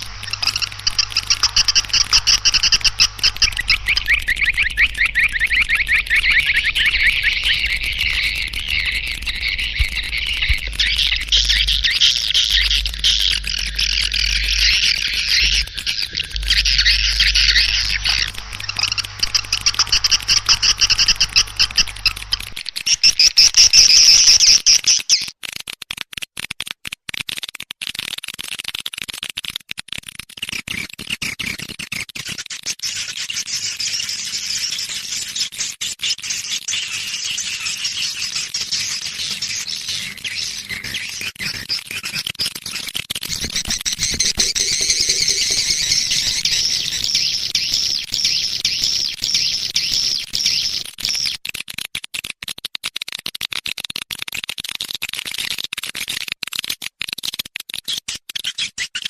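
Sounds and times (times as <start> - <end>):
low hum: 0.0 - 23.3
swiftlets chirping and twittering: 0.0 - 25.3, 32.2 - 51.4.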